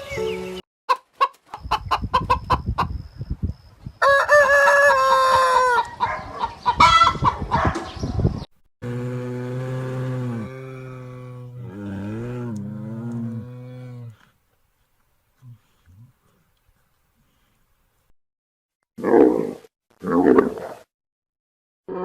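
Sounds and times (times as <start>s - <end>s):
rooster clucking: 0.9s - 3.0s, 4.0s - 7.9s
rooster crowing: 4.0s - 7.2s.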